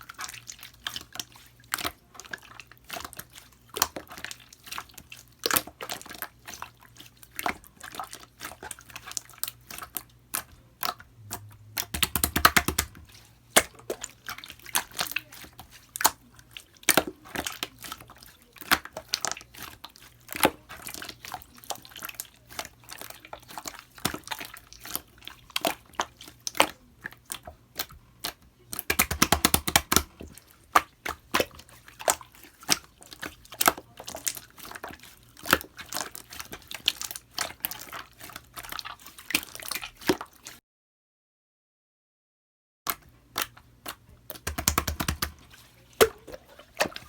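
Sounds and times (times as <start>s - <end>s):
slime clicking and popping: 11.2s - 14.0s, 28.8s - 30.2s, 43.4s - 45.4s.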